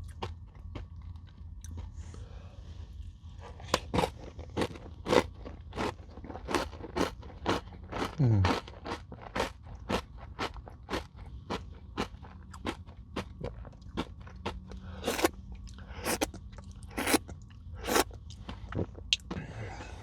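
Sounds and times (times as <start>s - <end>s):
chewing crunchy granola bar: 3.8s - 19.3s.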